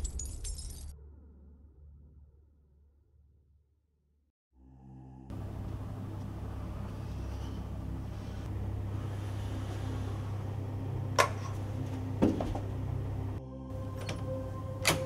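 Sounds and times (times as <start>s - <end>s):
low engine-like hum: 4.6s - 15.0s.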